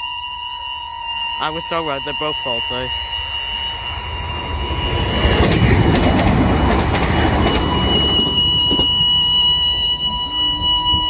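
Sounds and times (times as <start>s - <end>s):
crossing warning alarms: 0.0s - 11.0s
train wheels on rails: 3.8s - 11.0s.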